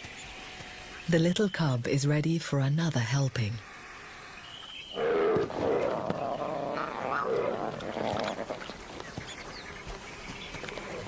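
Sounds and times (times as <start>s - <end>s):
lions growling: 5.0s - 8.7s.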